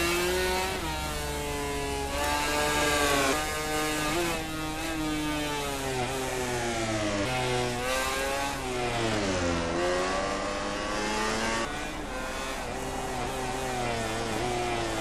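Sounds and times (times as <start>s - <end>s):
racing motorcycle engines: 0.0s - 15.0s.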